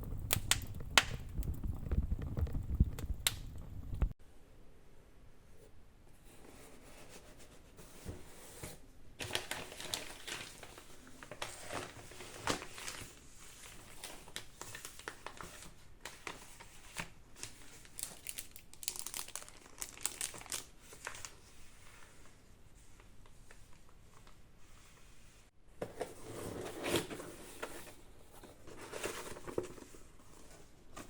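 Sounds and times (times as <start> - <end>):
packaging crinkling and rustling: 9.2 - 21.7.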